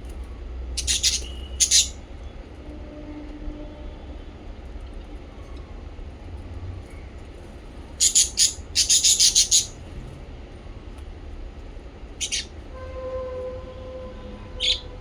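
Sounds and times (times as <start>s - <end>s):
parrots chirping: 0.8s - 2.0s, 8.0s - 9.8s, 12.2s - 12.5s, 14.6s - 14.9s.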